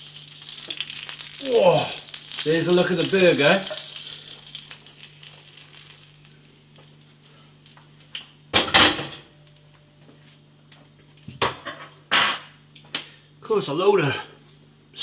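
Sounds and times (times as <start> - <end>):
burger sizzling on a griddle: 0.0 - 8.0
steady low hum: 0.0 - 11.3.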